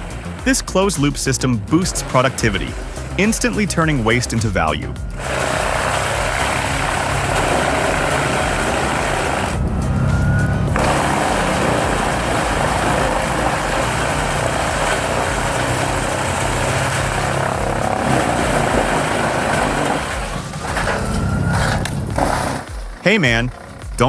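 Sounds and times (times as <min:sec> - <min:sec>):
wood chipper engine drone: 0:00.0 - 0:22.8
wood grinding in chipper: 0:05.2 - 0:23.9.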